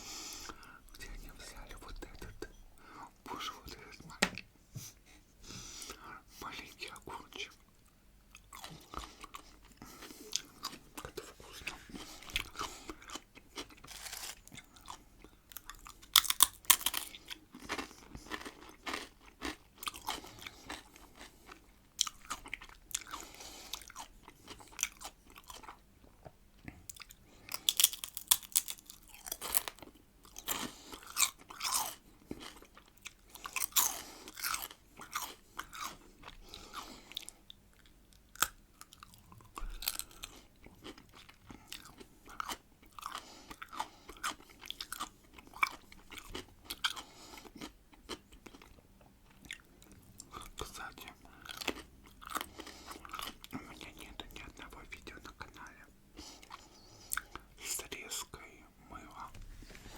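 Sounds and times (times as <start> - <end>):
crunchy pickle bites: 12.3 - 21.3, 26.9 - 32.7.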